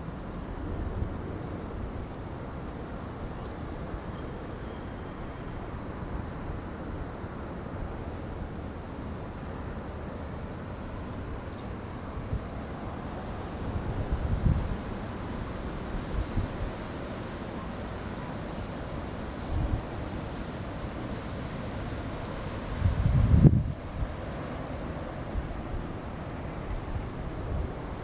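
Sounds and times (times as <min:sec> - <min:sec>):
wind blowing across microphone: 0:10.5 - 0:17.7, 0:18.4 - 0:28.0.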